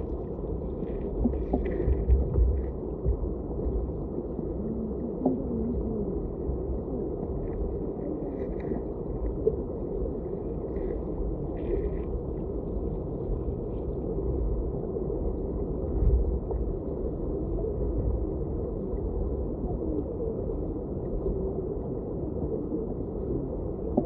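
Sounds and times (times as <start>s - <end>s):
faint gurgles: 0.0s - 24.0s.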